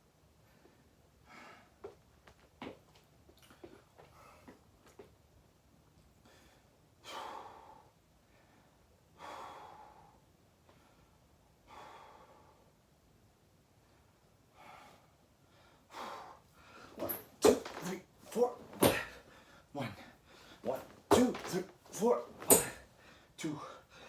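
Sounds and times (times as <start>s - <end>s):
person breathing heavily: 6.2s - 12.8s, 14.5s - 24.0s.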